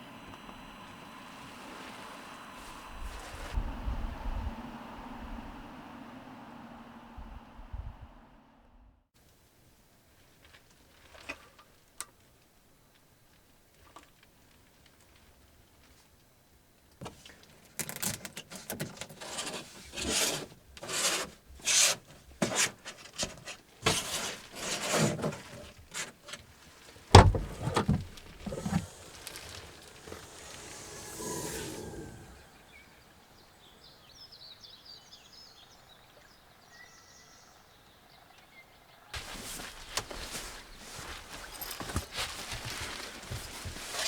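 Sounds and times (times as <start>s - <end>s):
soft rustle: 19.1s - 32.7s, 39.2s - 44.0s
wood rubbing and scraping: 19.2s - 32.5s
heavy thump: 27.2s - 32.5s.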